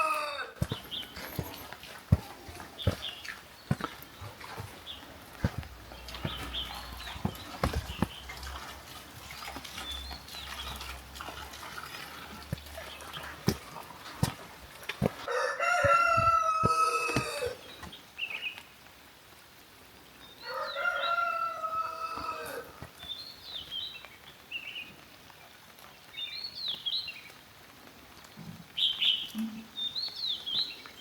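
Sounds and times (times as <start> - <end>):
rooster crowing: 0.0 - 0.7, 15.2 - 17.6, 20.4 - 22.8
small birds chirping: 0.0 - 18.8, 20.2 - 27.4, 28.8 - 31.0.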